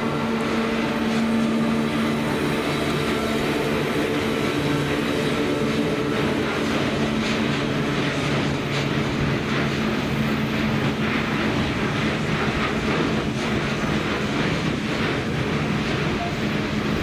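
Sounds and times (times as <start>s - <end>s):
low hum: 0.0s - 12.6s
train wheels rumbling on rail: 0.0s - 17.0s.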